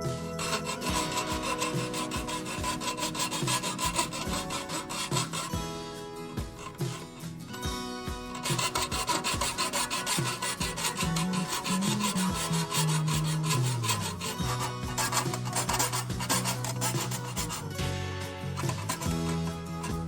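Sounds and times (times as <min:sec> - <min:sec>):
hand file rasping on saw blade: 0:00.0 - 0:05.7, 0:06.4 - 0:07.3, 0:08.3 - 0:20.0.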